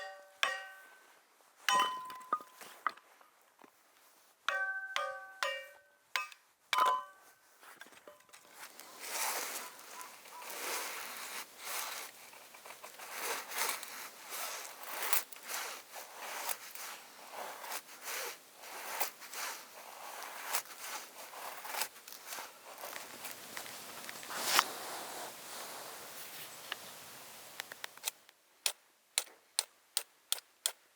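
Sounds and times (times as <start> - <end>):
rustling and scraping: 7.3 - 27.0.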